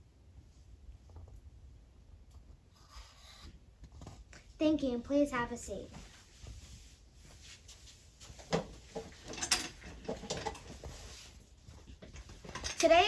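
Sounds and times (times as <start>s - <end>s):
faint knocks and rustles: 2.2s - 4.6s, 5.8s - 13.0s.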